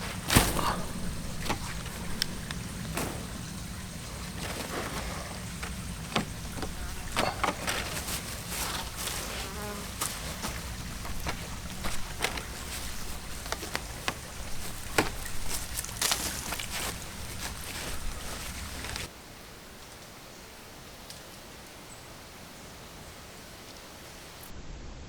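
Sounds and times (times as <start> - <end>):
fly buzzing: 0.0 - 19.1
short knocks and scrapes: 0.0 - 19.1.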